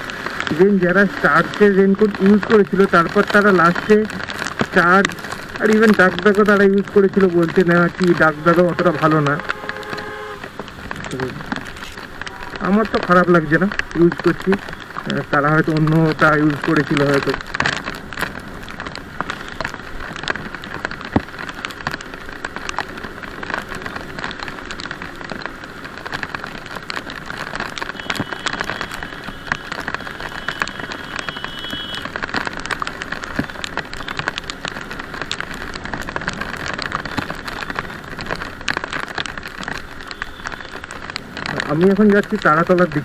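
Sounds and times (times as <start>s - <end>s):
rain hissing: 0.0s - 43.0s
raindrops ticking on microphone: 0.0s - 43.0s.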